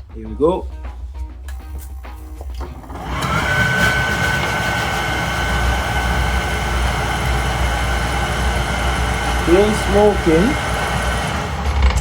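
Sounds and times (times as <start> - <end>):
burner rumble: 2.5 - 12.0
furnace blower whine: 2.6 - 12.0.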